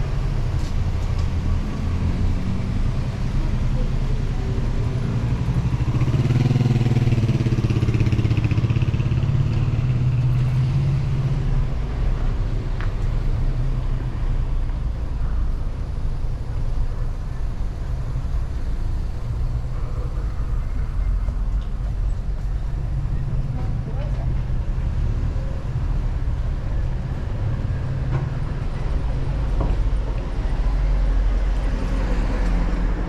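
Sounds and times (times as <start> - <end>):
low traffic rumble: 0.0 - 33.0
vehicle engine passing by: 1.8 - 11.5.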